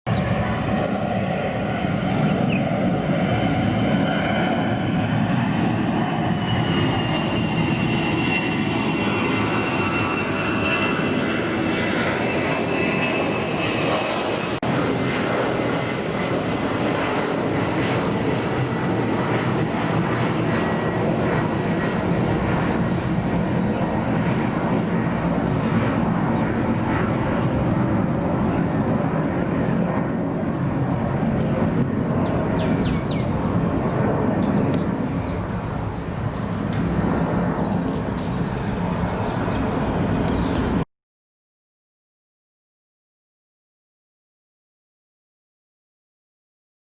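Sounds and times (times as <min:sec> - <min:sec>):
jet engines roaring: 0:00.1 - 0:40.8
high engine whine: 0:21.2 - 0:40.8.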